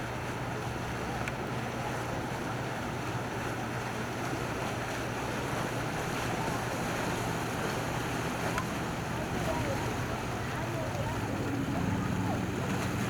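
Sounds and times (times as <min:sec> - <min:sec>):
boat engines running: 0:00.0 - 0:13.0
water wash: 0:00.0 - 0:13.0.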